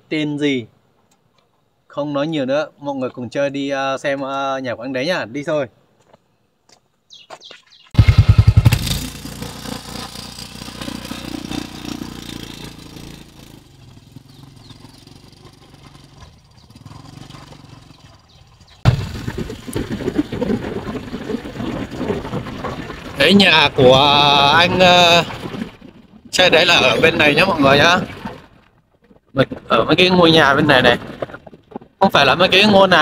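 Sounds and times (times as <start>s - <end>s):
motorcycle engine running: 8.0s - 18.9s.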